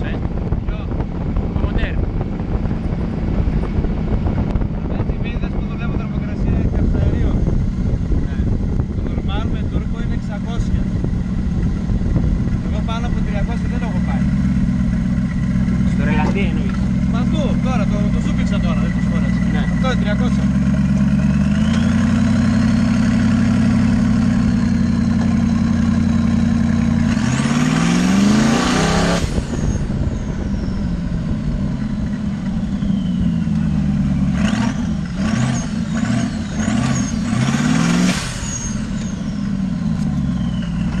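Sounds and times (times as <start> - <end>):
engine revving: 0.0 - 41.0
turbo whistle: 38.4 - 39.5.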